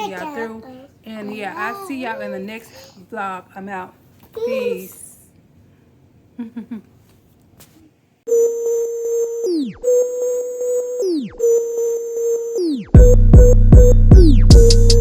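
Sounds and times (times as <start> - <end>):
heavy bass and drum beat: 13.0 - 15.0.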